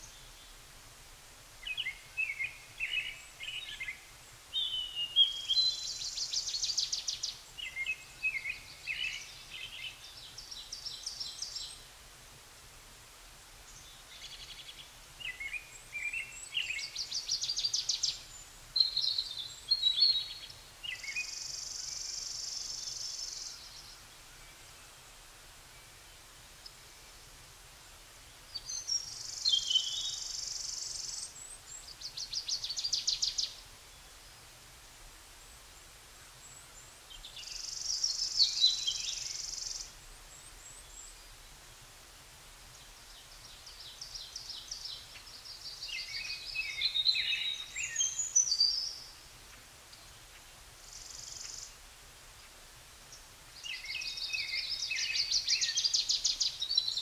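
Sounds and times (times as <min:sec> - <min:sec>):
songbirds chirping and trilling: 0:35.4 - 0:41.8, 0:42.7 - 0:57.0.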